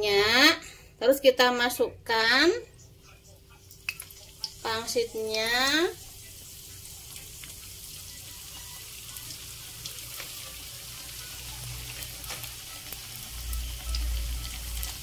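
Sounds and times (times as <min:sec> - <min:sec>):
food frying in hot oil: 0:03.0 - 0:15.0.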